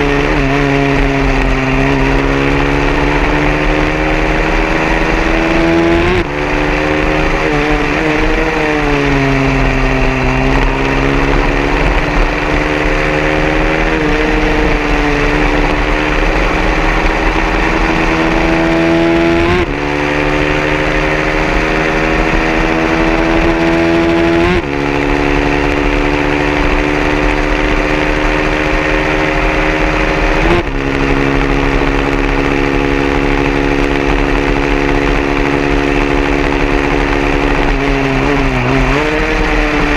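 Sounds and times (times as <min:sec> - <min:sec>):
racing motorcycle engine full throttle: 0:00.0 - 0:39.9.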